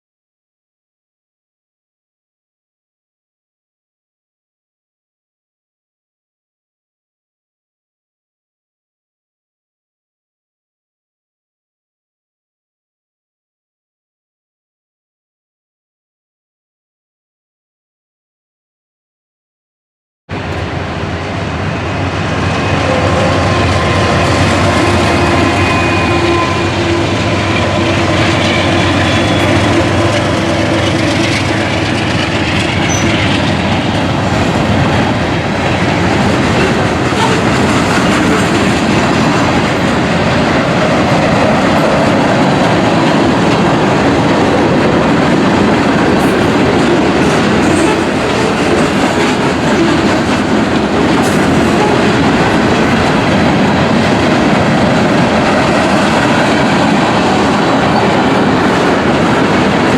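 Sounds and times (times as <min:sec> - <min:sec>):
freight train wheels clacking: 0:20.4 - 0:59.9.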